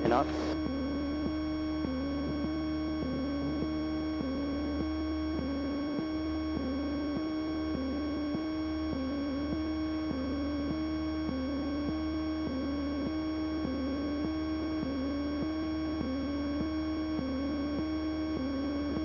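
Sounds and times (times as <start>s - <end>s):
aircraft engine drone over intercom: 0.0s - 9.2s
electrical whine: 0.0s - 19.0s.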